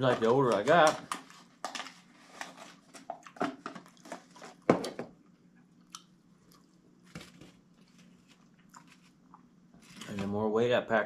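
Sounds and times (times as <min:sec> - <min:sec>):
person chewing food: 0:02.4 - 0:10.1.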